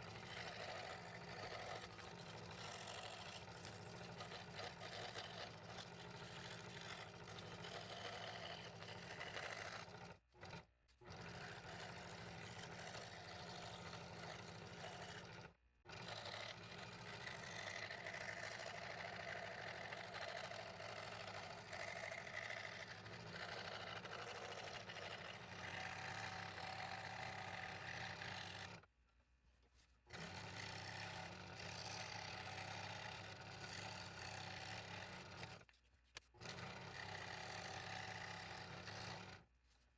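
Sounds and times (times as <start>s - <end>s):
scroll saw cutting wood: 0.0s - 28.9s, 30.1s - 39.6s.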